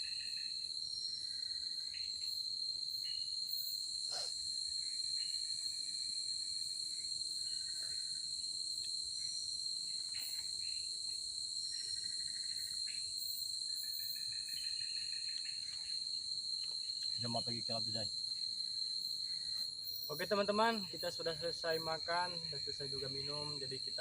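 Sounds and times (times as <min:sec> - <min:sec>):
faint trilling insect calls: 0:00.0 - 0:24.0
insect chorus shrill tone: 0:00.0 - 0:24.0.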